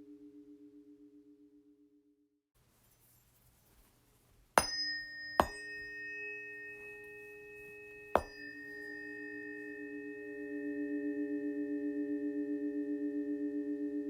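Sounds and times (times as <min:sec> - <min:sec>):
pure ringing tone: 0:00.0 - 0:02.2, 0:04.6 - 0:14.0
tuning fork strikes: 0:04.6 - 0:14.0.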